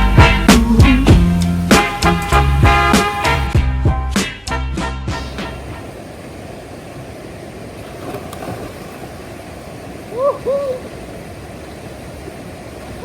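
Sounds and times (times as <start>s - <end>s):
water rushing from waterfall: 5.3s - 13.0s
hoot-like calls: 10.1s - 11.0s.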